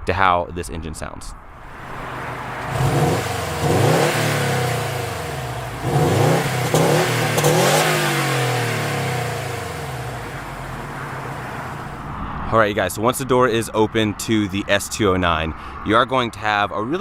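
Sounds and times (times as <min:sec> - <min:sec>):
car engine revving: 0:01.6 - 0:12.1.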